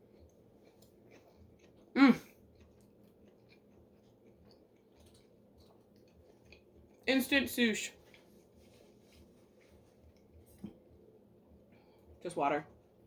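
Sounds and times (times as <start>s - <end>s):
chewing and mouth clicks: 0.0s - 7.1s, 9.2s - 10.8s.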